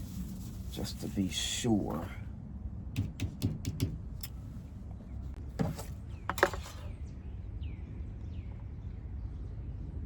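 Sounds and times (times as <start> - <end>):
handling noises: 5.3 - 7.0.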